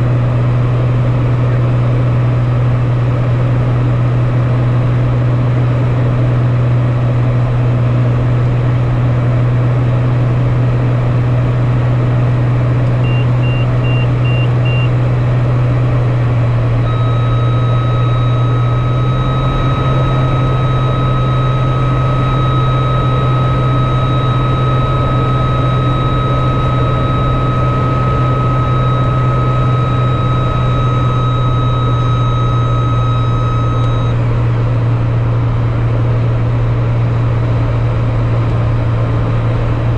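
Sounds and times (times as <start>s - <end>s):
aircraft engine drone: 0.0s - 39.9s
high beeps: 13.0s - 14.9s, 16.9s - 34.2s
steady high tone: 16.8s - 34.3s.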